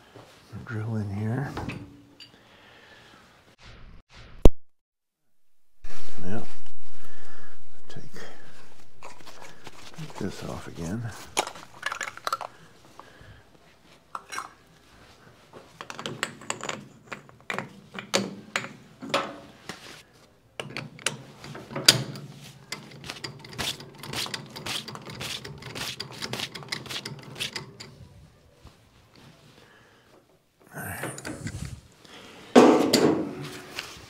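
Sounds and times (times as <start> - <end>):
steady low hum: 5.8 - 11.8
metal tools clinking: 9.0 - 12.7.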